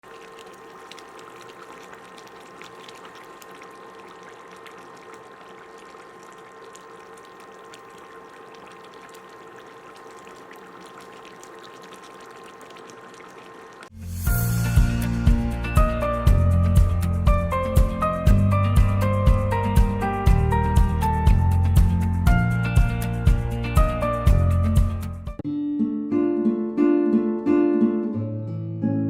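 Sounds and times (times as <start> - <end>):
faint hum: 0.0 - 13.9.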